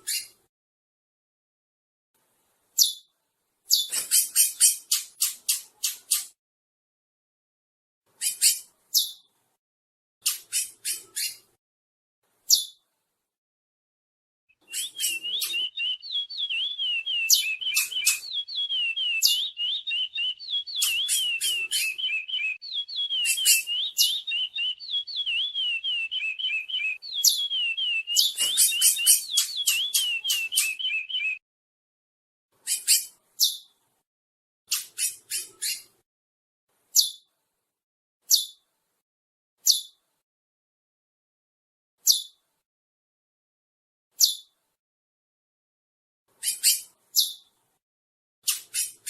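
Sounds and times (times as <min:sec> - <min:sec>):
finch warbling song: 0:14.6 - 0:31.4
sharp high bird chips: 0:14.7 - 0:31.4.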